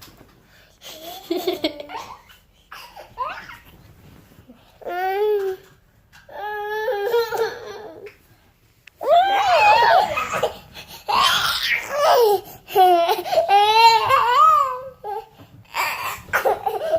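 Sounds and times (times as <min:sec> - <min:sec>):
child laughing and squealing: 0:09.0 - 0:12.2.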